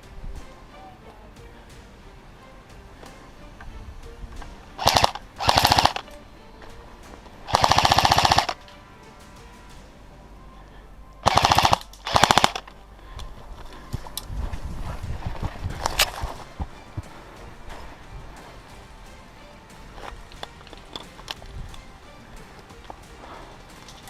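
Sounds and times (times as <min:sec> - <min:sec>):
airsoft rifle firing bursts: 0:04.8 - 0:06.1, 0:07.5 - 0:08.6, 0:11.2 - 0:12.7.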